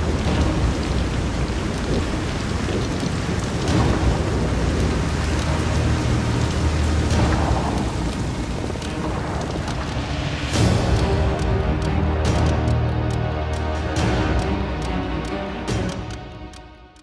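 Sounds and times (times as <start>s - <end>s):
low rolling thunder: 0.0s - 11.3s
heavy rain falling: 0.0s - 16.6s.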